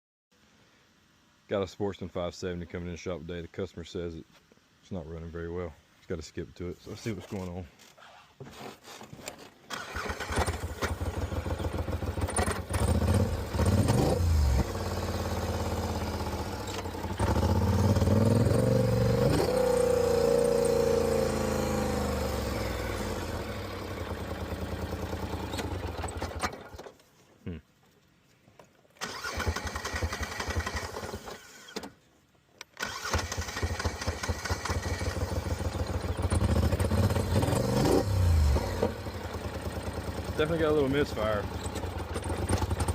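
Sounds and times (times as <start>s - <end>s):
atv engine running with misfire: 9.7s - 27.0s, 29.0s - 31.8s, 32.8s - 42.9s.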